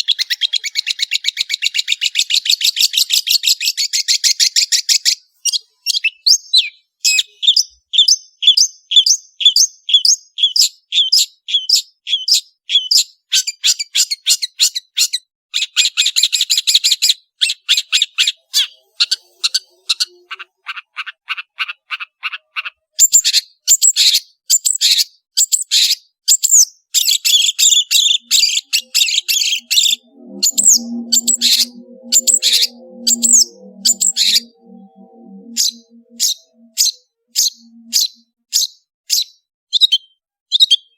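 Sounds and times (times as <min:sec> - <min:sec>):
shrike singing trills: 0:17.8 - 0:25.0, 0:25.8 - 0:40.9
soft low music: 0:28.2 - 0:36.9.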